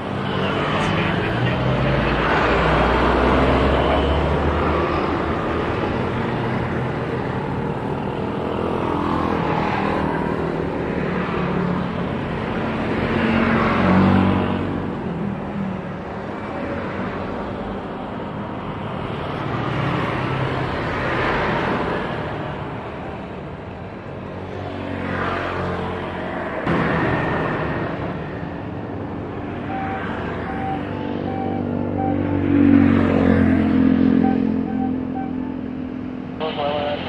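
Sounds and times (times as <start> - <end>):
traffic noise: 0.0 - 37.0
vehicles passing close: 0.0 - 37.0.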